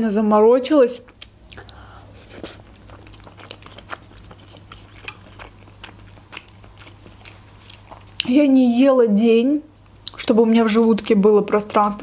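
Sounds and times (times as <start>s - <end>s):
faint low hum: 0.0s - 12.0s
chewing with wet mouth clicks: 1.0s - 8.4s, 9.8s - 11.8s.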